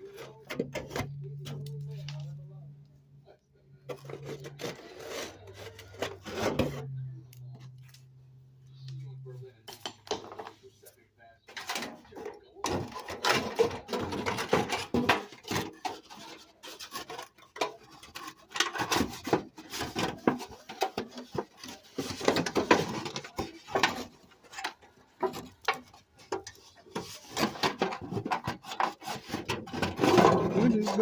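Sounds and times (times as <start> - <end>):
hand tool scraping wood: 3.9 - 6.9, 12.7 - 31.0.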